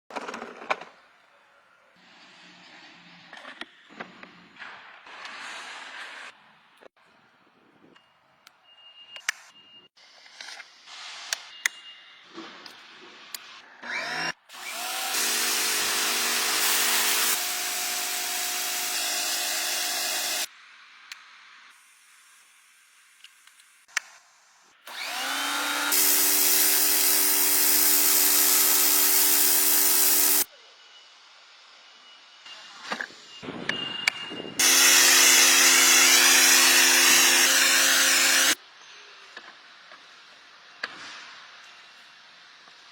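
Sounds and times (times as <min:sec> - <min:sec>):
click: 0:07.9 - 0:08.6
pressure washer motor whine: 0:24.9 - 0:30.5, 0:34.6 - 0:38.6
water jet hissing: 0:25.9 - 0:30.5.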